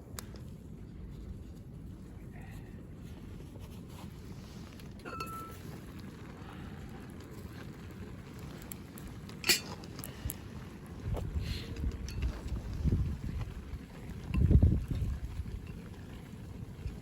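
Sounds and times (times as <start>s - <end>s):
low steady background noise: 0.0s - 17.0s
ringing clink: 5.1s - 5.6s.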